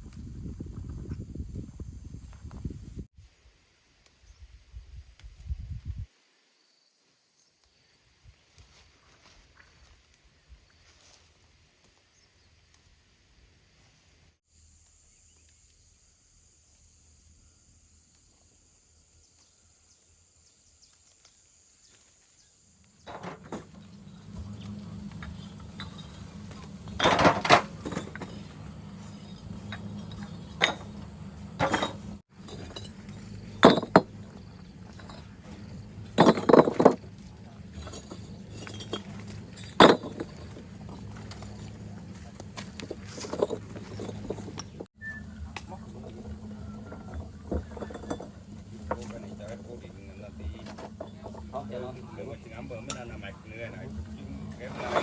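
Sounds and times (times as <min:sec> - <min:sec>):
steady low hum: 0:23.0 - 0:55.0
hard objects clinking: 0:23.1 - 0:44.9.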